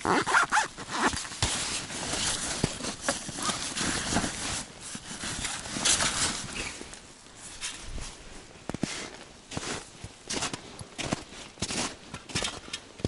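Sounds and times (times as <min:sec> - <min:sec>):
fabric and nylon rustling: 0:00.0 - 0:10.0.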